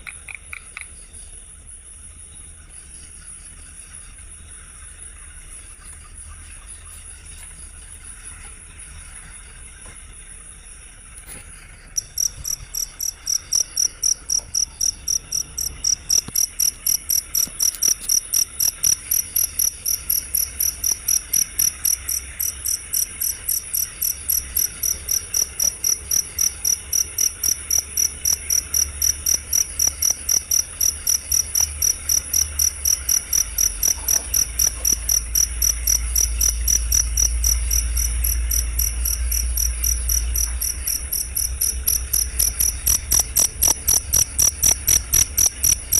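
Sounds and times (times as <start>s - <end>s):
cricket chirping: 0.0s - 45.9s
low rumble: 34.4s - 45.9s.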